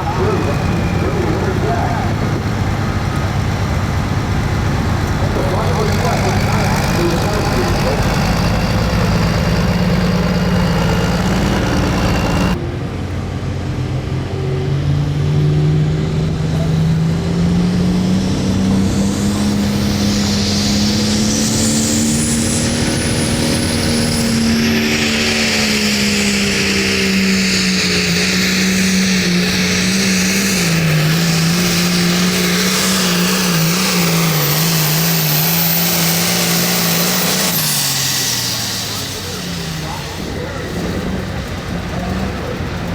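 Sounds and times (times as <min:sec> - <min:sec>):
tractor diesel engine under load: 0:00.0 - 0:42.9
high whistle: 0:19.2 - 0:29.9.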